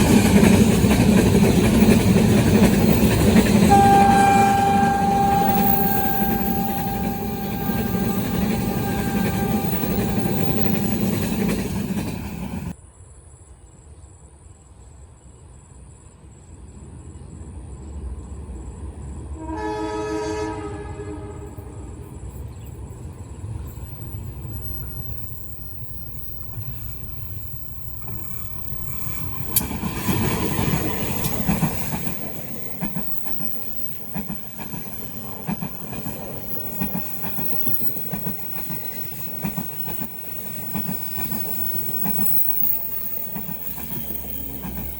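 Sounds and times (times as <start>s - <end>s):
train passing: 0.0s - 12.8s, 16.7s - 44.9s
train horn: 3.2s - 12.7s, 19.4s - 22.1s.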